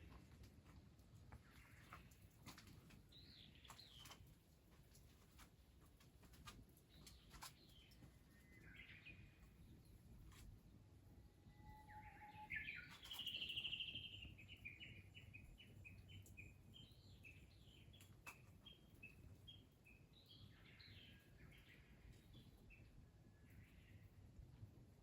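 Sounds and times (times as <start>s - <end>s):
faint low hum: 0.0s - 25.0s
songbird singing: 6.9s - 10.0s, 11.5s - 24.1s.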